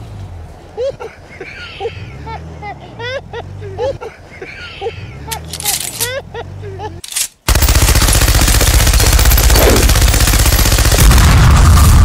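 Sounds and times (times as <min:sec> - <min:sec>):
machine gun burst: 0:07.5 - 0:11.4.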